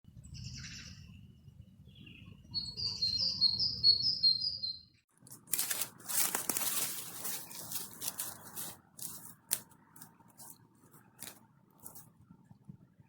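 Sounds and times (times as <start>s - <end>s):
songbird singing: 0.1s - 5.0s
dry rustling: 5.2s - 12.2s.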